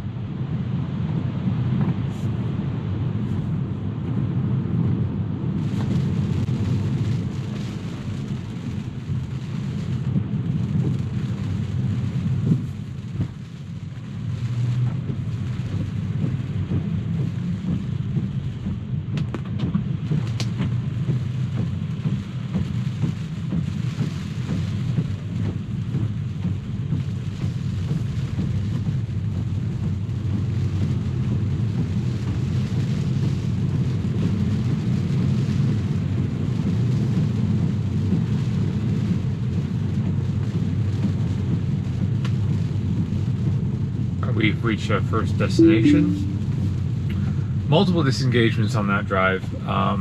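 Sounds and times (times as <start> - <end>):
car driving on wet road: 0.0 - 45.6, 46.4 - 50.0
rain noise: 0.0 - 50.0.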